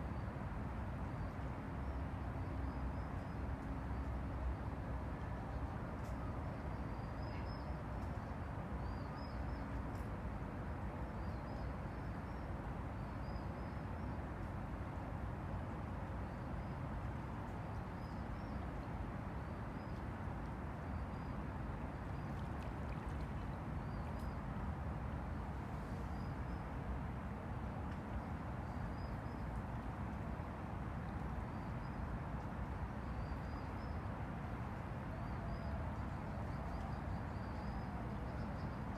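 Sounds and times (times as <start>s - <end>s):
river water lapping: 21.8s - 27.3s.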